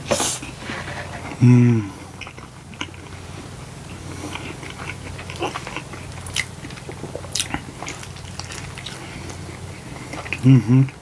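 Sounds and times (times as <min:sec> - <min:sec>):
person chewing and biting food: 0:02.2 - 0:11.0.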